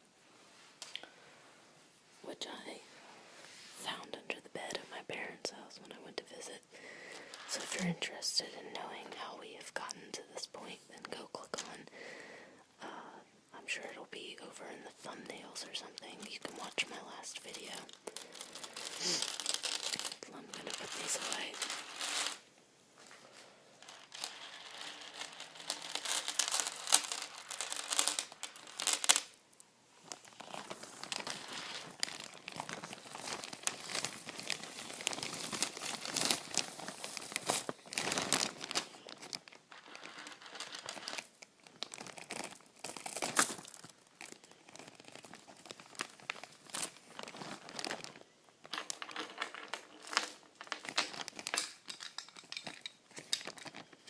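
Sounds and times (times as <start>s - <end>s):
plastic crinkling and crumpling: 15.0s - 29.4s, 30.0s - 54.0s.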